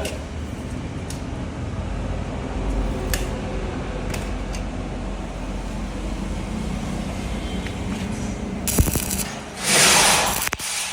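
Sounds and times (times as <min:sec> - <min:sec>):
low mechanical rumble: 0:00.0 - 0:10.5.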